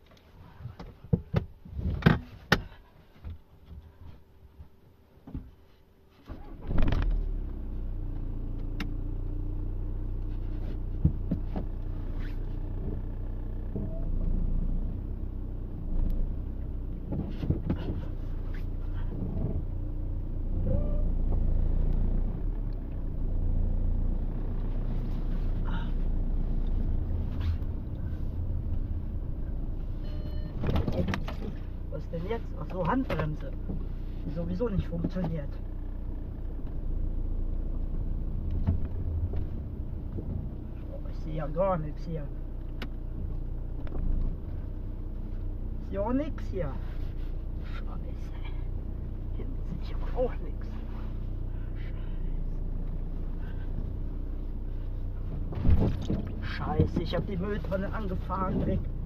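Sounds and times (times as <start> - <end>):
car engine starting and idling: 6.3 - 59.0
rustles: 10.1 - 13.8, 24.2 - 41.2, 42.3 - 59.0.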